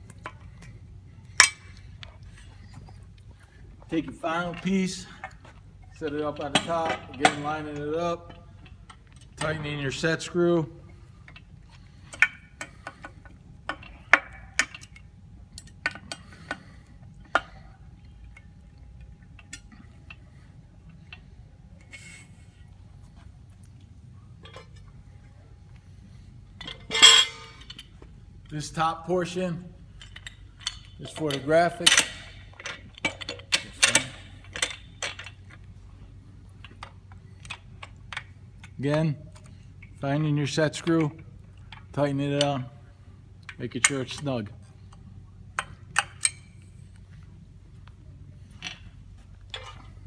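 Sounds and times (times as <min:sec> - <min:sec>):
metal parts clicking and clinking: 0:00.1 - 0:10.4, 0:11.2 - 0:20.3, 0:24.4 - 0:25.8, 0:26.6 - 0:42.7, 0:43.4 - 0:50.0
stand parts clicking and knocking: 0:04.0 - 0:10.0, 0:11.3 - 0:17.6, 0:26.6 - 0:28.0, 0:28.6 - 0:35.8.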